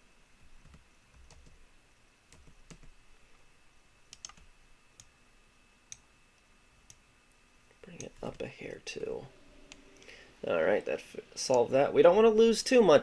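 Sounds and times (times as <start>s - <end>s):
computer mouse and keyboard clicks: 4.1s - 5.1s.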